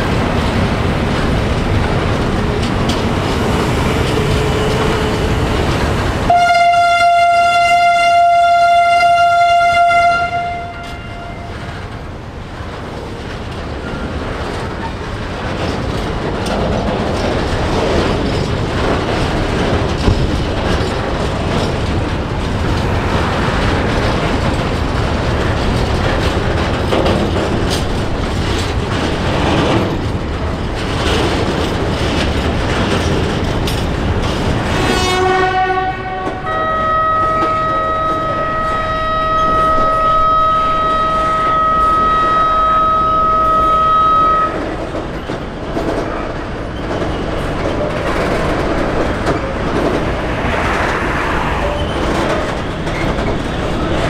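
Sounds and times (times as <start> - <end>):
train rumbling and wheel clatter: 0.0 - 54.0
train horn blast: 4.1 - 5.5, 6.3 - 11.8, 34.7 - 44.7.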